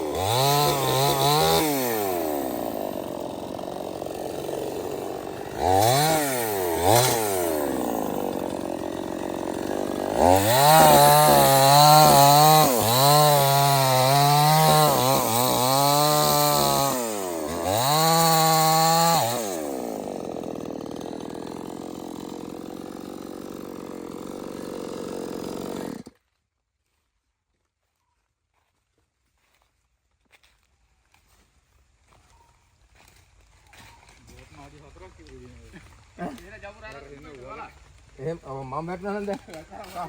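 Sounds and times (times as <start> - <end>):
chainsaw revving and idling: 0.0 - 26.2, 33.8 - 40.0
chainsaw cutting wood: 0.0 - 26.3, 35.3 - 40.0.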